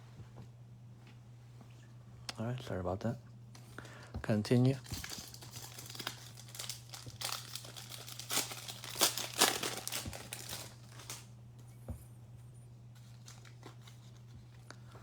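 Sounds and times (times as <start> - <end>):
foil wrapper crinkling and tearing: 4.7 - 11.3, 13.2 - 14.2.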